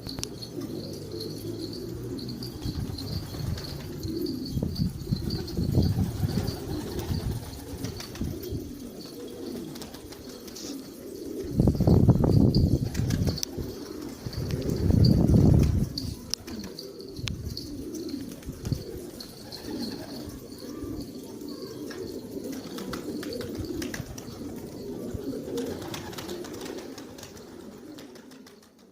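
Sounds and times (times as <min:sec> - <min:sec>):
pigeons cooing: 0:00.0 - 0:28.9.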